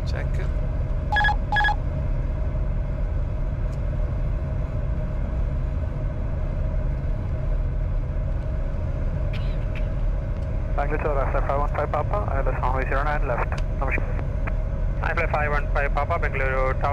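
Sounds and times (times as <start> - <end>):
cockpit airflow and engine rumble: 0.0 - 16.9
faint steady hum: 0.0 - 16.9
short electronic beep: 1.1 - 1.8.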